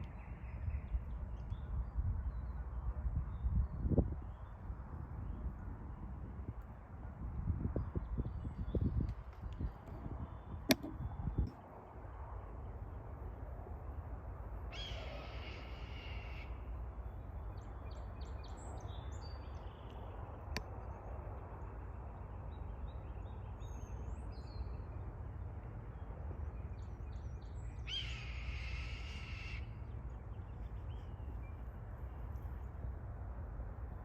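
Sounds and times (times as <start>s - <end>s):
faint short bird calls: 14.7s - 16.6s
bird of prey screeching: 14.8s - 16.5s.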